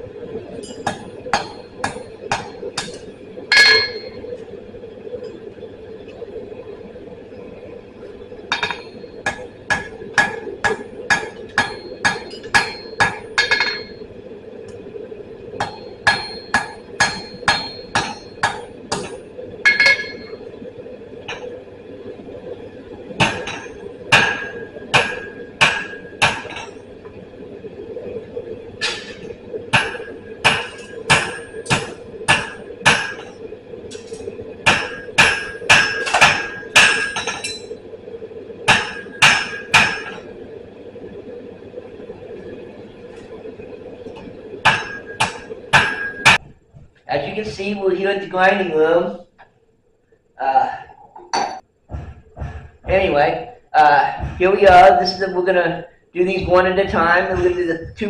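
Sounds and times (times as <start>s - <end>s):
steady hum: 0.0s - 58.0s
hammer striking steel on anvil: 0.7s - 4.2s, 8.5s - 13.9s, 15.6s - 20.4s, 23.2s - 26.6s, 28.8s - 33.3s, 33.9s - 37.7s, 38.7s - 40.2s, 44.6s - 46.4s.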